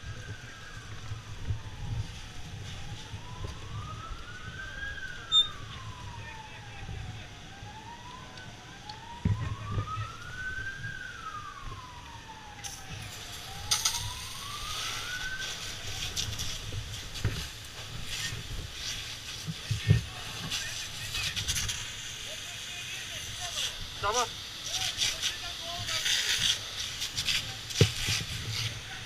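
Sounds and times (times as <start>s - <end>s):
emergency siren wailing: 0.0s - 29.0s
steady high hiss: 12.6s - 29.0s.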